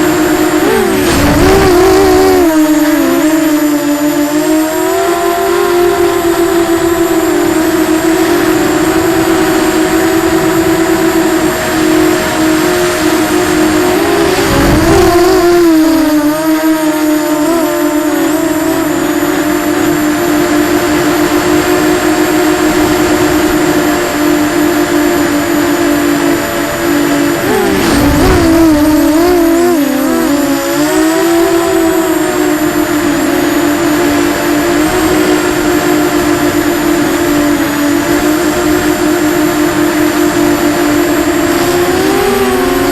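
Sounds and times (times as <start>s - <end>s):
drone motors and propellers whining: 0.0s - 42.9s.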